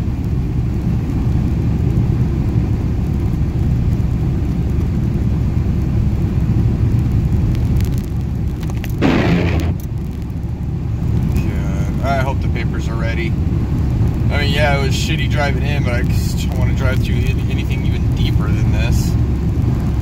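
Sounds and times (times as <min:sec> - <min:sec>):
car engine and tyres rumbling: 0:00.0 - 0:20.0
short rushing sound: 0:08.9 - 0:09.9.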